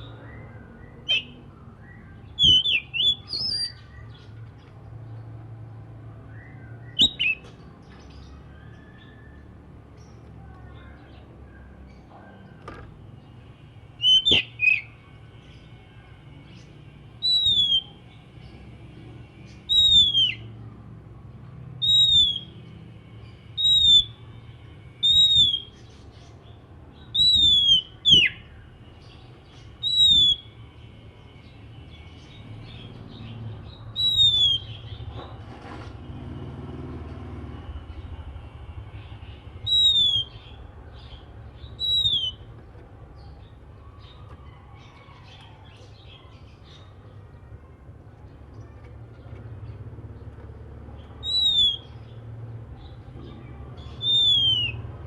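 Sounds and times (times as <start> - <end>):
bird downslurred whistle: 1.0 - 3.8, 14.0 - 14.9, 17.2 - 18.0, 19.7 - 20.4, 21.8 - 22.6, 23.6 - 24.2, 25.0 - 25.8, 27.2 - 28.4, 29.8 - 30.5, 34.0 - 34.8, 39.6 - 40.5, 41.8 - 42.4, 51.2 - 51.9, 54.0 - 54.8.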